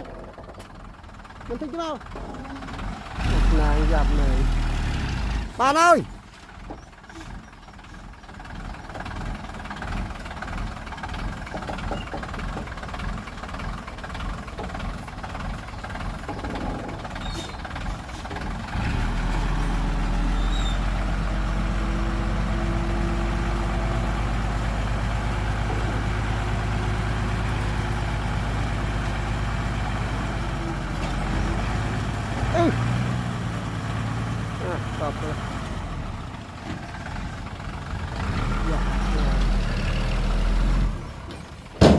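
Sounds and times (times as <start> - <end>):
heavy diesel engine rumbling: 0.0 - 41.9.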